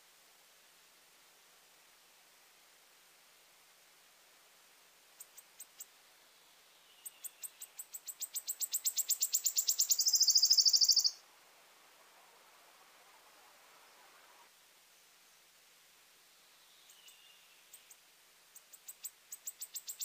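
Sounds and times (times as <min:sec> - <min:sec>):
wood warbler singing: 0:06.8 - 0:11.2, 0:16.7 - 0:18.0, 0:18.6 - 0:20.0.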